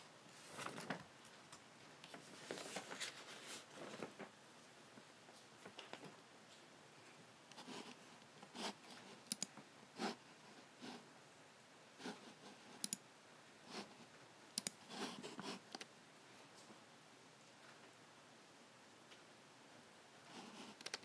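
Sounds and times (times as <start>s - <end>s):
soft rubbing sounds: 2.1s - 4.2s
computer mouse button clicking: 9.3s - 9.5s, 14.6s - 14.8s.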